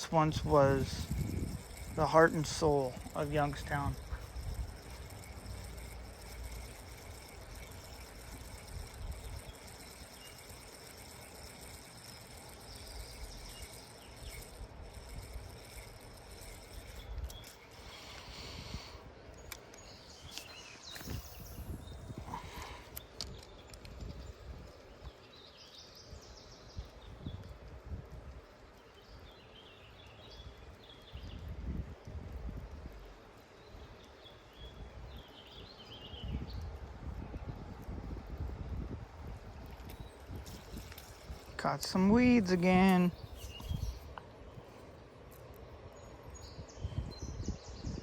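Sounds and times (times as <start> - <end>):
insects chirring: 0.0 - 32.0, 32.6 - 48.0
bird chirping: 39.6 - 44.2.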